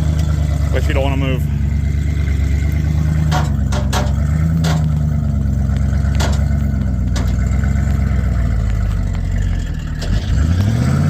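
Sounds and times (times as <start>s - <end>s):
pickup engine droning: 0.0s - 11.0s
sharp knocks and clanks: 2.8s - 9.4s.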